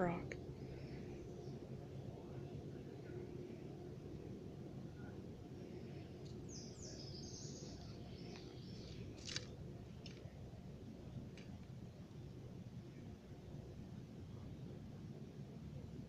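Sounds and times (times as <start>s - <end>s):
low outdoor background noise: 0.0s - 16.0s
small bird chirping: 6.3s - 9.1s.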